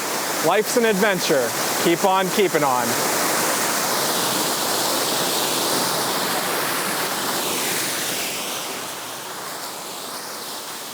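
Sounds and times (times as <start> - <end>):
waterfall rushing: 0.0 - 10.9.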